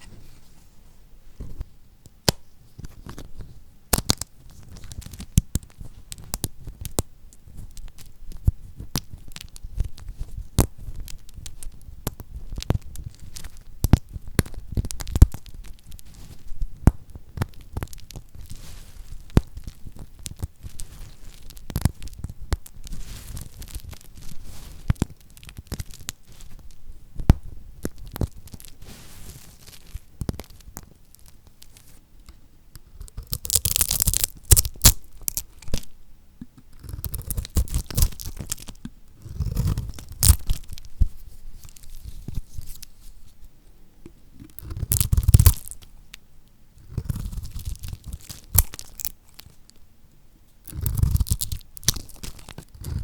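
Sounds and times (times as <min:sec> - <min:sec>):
small crackles and clicks: 0:01.5 - 0:35.9, 0:36.5 - 0:43.4, 0:44.0 - 0:49.9, 0:50.6 - 0:53.0
knife cutting crunchy soap: 0:36.6 - 0:40.9, 0:44.4 - 0:45.8, 0:46.8 - 0:49.5, 0:50.7 - 0:53.0.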